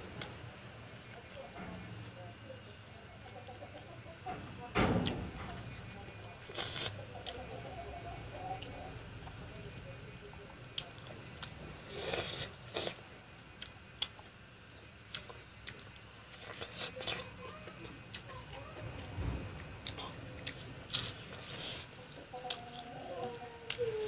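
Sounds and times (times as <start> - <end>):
person chewing food: 6.4 - 7.4, 10.8 - 13.0, 13.6 - 17.3, 19.8 - 24.0.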